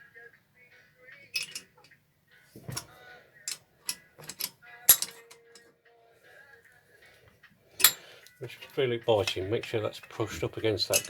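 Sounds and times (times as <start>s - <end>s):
tools and metal parts clicking: 1.2s - 2.0s, 2.6s - 5.7s, 7.8s - 8.0s.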